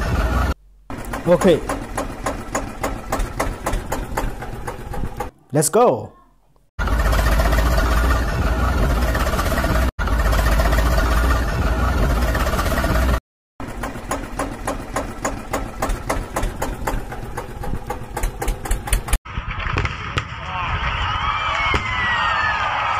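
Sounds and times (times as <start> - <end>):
rapid clicks and rattles: 0.9 - 5.3, 12.2 - 19.2.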